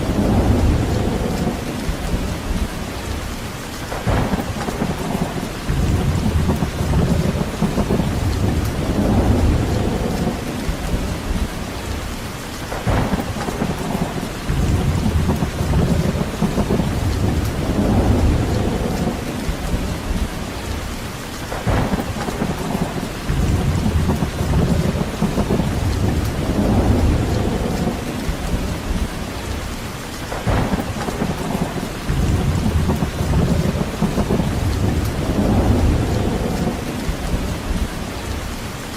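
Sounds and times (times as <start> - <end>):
steady rain: 0.0 - 38.9
deep low rumble: 5.7 - 11.5, 14.5 - 20.4, 23.3 - 29.1, 32.1 - 37.9.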